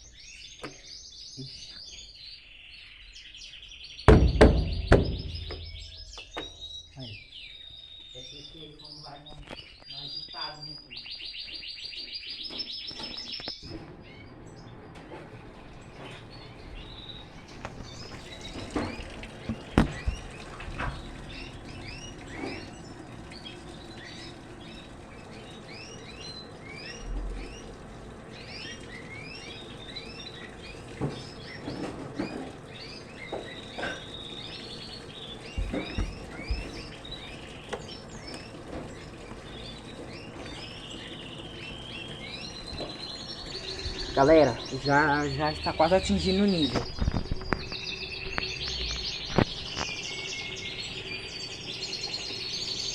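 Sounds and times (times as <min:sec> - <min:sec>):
small birds chirping: 0:00.0 - 0:52.9
sharp knocks: 0:04.1 - 0:06.6, 0:18.5 - 0:21.1.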